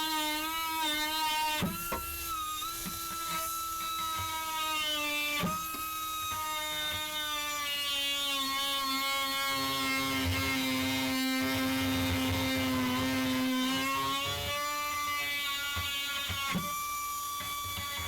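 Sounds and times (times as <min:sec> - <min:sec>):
power grinder whining: 0:00.0 - 0:18.0.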